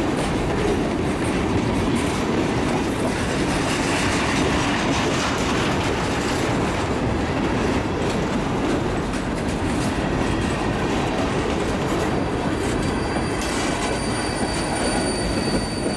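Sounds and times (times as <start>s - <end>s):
train wheels rumbling and rattling: 0.0s - 15.9s
faint high wheel squeal: 12.2s - 15.9s.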